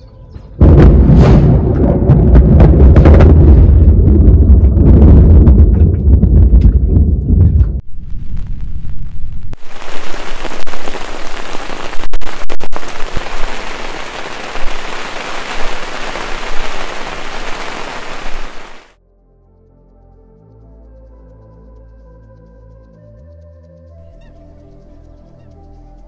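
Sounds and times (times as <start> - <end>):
low rumble: 0.6 - 18.9
heavy rain on water: 9.5 - 19.0.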